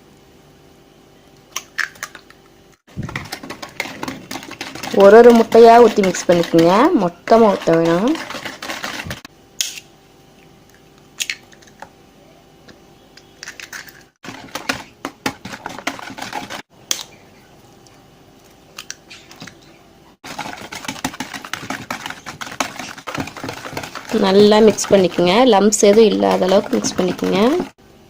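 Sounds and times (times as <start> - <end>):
utensil scraping a bowl: 3.2 - 9.3, 20.3 - 27.8.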